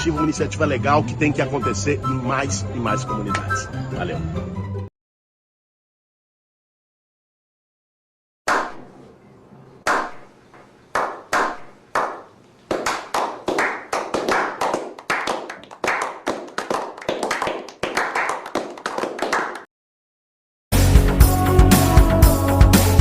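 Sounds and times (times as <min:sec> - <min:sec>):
hand clapping: 0:10.9 - 0:19.7.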